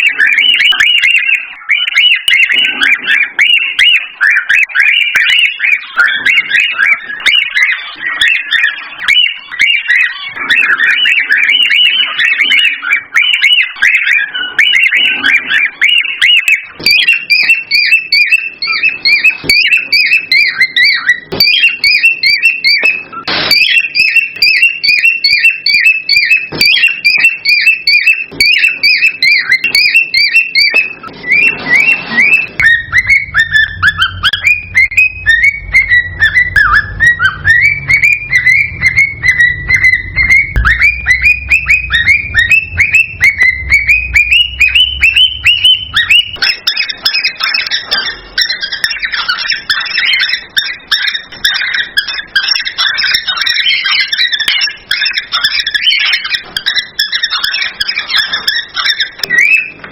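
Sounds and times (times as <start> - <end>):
cockatiels chirping and whistling: 0.0 - 59.9.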